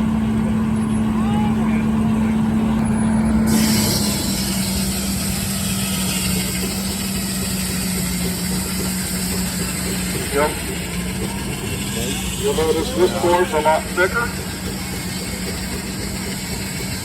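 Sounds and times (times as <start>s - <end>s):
sawmill humming: 0.0s - 17.0s
hiss: 3.5s - 12.8s.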